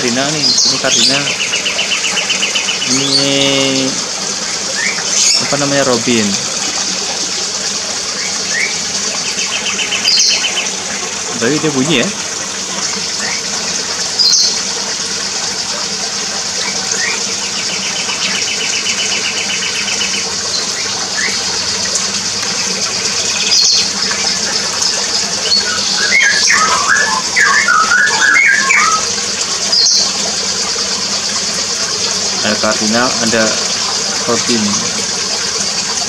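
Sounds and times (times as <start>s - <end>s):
small birds chirping and trilling: 0.0s - 6.4s, 8.0s - 12.2s, 14.2s - 14.6s, 16.6s - 31.1s.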